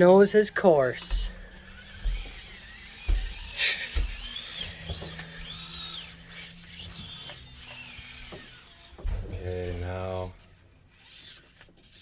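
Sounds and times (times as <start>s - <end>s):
small electric motor whining: 0.0s - 12.0s
low thumps: 0.9s - 10.5s.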